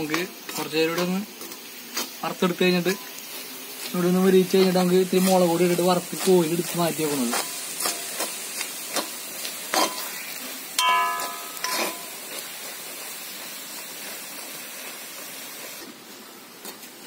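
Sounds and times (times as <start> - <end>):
clams sizzling in oil: 0.0 - 17.0
spoon scraping and knocking pan: 4.5 - 12.5.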